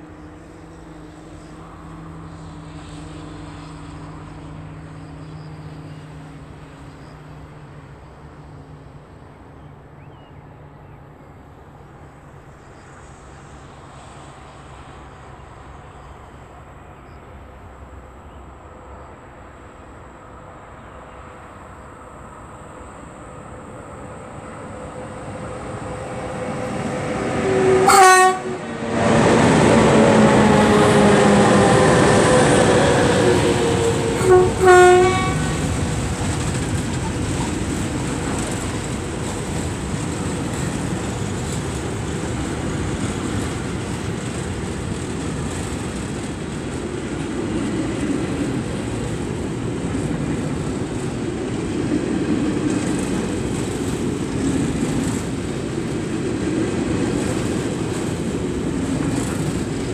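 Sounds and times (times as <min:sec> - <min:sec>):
electric locomotive whine: 0:00.0 - 0:59.9
train horn blasts: 0:27.4 - 0:35.8
wheels clattering on rail joints: 0:29.4 - 0:59.9.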